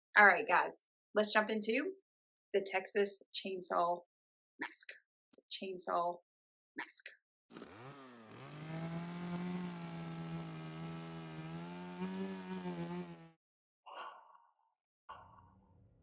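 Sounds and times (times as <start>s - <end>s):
chainsaw engine revving: 7.5s - 13.4s.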